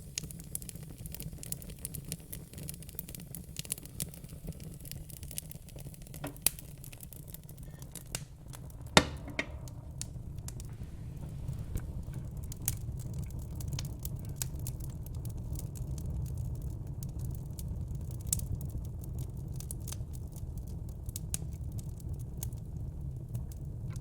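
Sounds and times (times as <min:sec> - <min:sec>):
fire crackling: 0:00.0 - 0:24.0
low rumble: 0:08.1 - 0:15.4.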